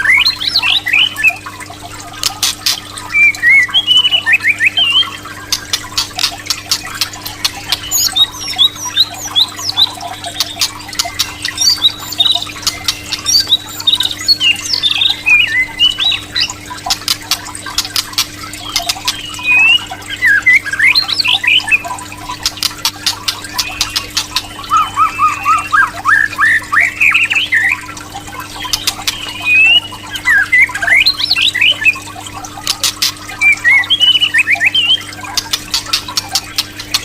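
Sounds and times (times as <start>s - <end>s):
sharp bird clicks: 2.2s - 4.0s, 4.8s - 27.8s, 28.4s - 31.6s, 32.6s - 37.0s
bird whistled notes: 23.5s - 27.8s, 28.6s - 32.0s.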